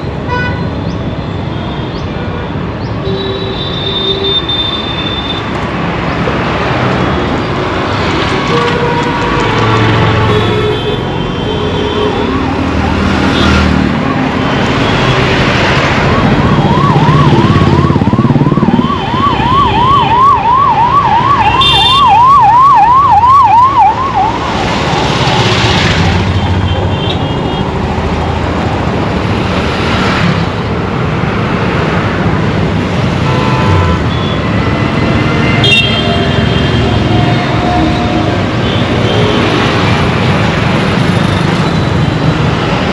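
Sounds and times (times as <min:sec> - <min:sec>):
road traffic rumble: 0:00.0 - 0:42.9
emergency siren warbling: 0:13.7 - 0:25.8.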